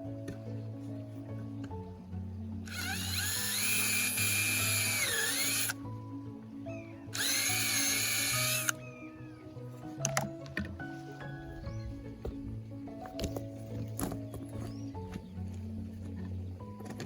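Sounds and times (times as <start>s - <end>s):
power drill motor whine: 2.7s - 5.8s, 7.1s - 8.8s.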